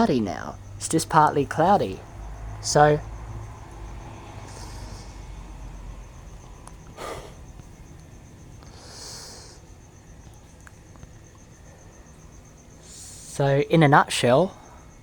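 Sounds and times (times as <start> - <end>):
faint pulsing high chirp: 0.0 - 15.0
person sniffing and breathing: 4.4 - 5.4, 6.8 - 7.7, 8.6 - 9.8, 12.8 - 13.4.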